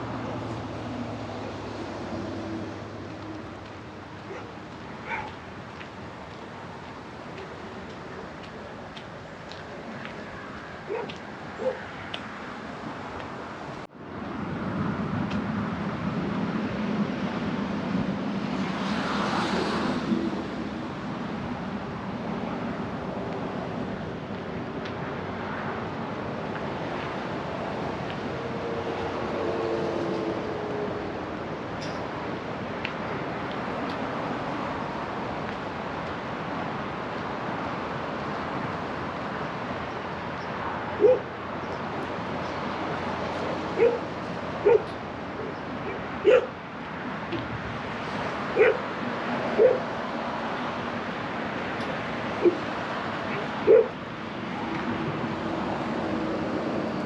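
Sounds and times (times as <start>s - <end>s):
traffic rumble: 0.0s - 57.0s
vehicle passing by: 14.3s - 21.6s.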